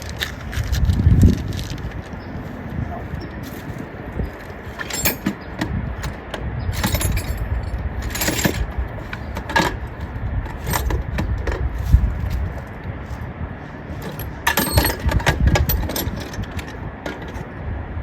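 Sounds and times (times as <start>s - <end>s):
metal parts and tools clinking: 3.2s - 13.2s, 13.9s - 17.5s.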